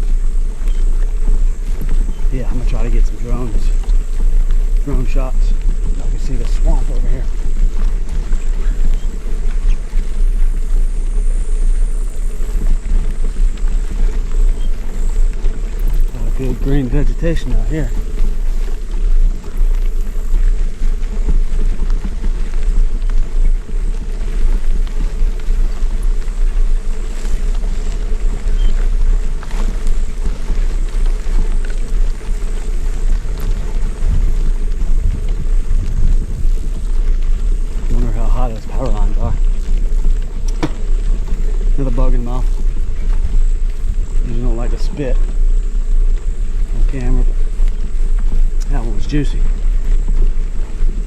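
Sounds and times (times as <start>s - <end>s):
bike tyres rolling on dirt: 0.0s - 51.0s
wind buffeting microphone: 0.0s - 51.0s.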